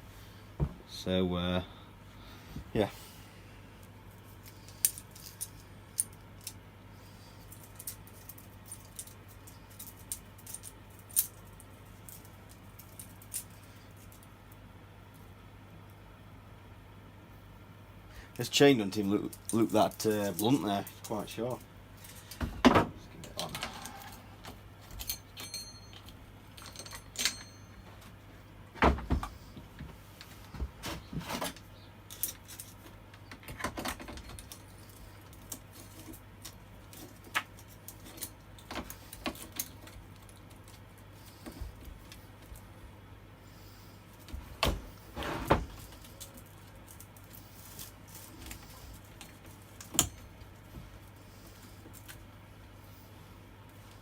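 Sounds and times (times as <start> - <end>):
metallic clinks and rattles of tools: 4.4 - 6.6, 7.4 - 14.3, 24.9 - 27.8.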